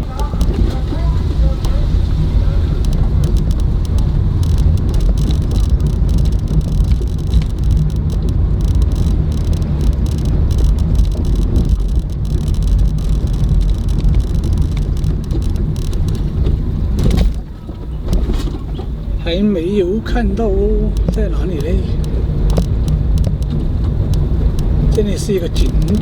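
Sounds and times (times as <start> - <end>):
light clicks and rattles: 0.0 - 26.0
van engine and road noise: 0.0 - 26.0.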